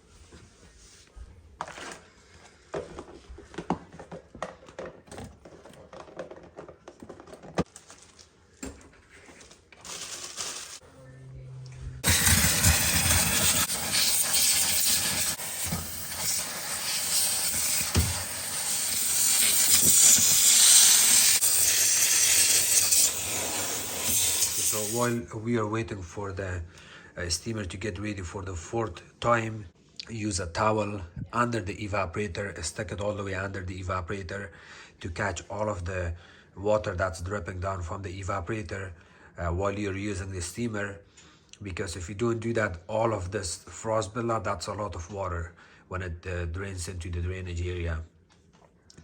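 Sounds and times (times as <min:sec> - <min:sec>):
steamer hissing: 0:12.0 - 0:25.2.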